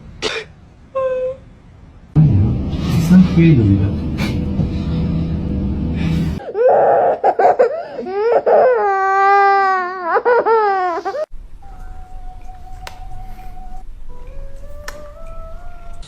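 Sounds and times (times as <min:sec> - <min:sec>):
wavering vocal cries: 0:06.4 - 0:16.0.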